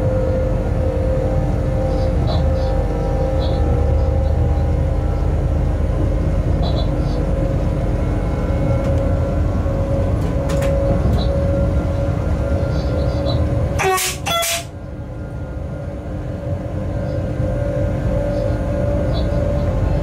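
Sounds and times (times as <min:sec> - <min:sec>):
steady hum: 0:00.0 - 0:20.0
train rumble: 0:00.0 - 0:20.0
short high train horn toots: 0:13.8 - 0:14.8.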